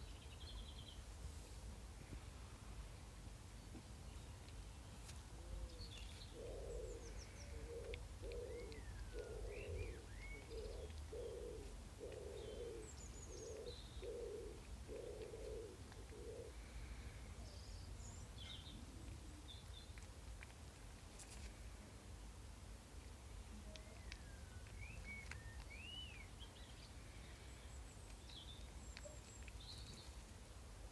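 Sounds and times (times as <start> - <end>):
small birds chirping: 4.1 - 20.2, 23.6 - 30.9
dove cooing: 5.4 - 16.6.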